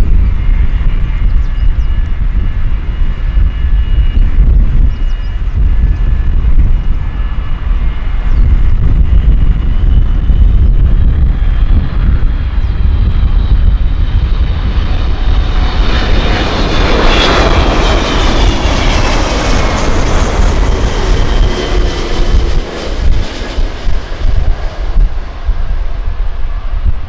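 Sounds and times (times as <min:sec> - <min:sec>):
airliner engine whine: 0:00.0 - 0:27.0
wind buffeting microphone: 0:00.0 - 0:27.0.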